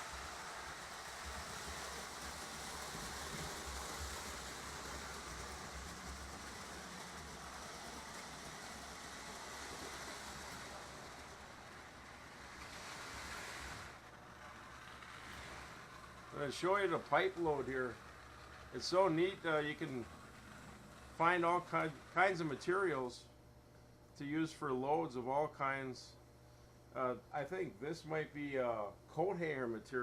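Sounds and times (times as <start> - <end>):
model trains whirring on track: 0.0 - 23.1.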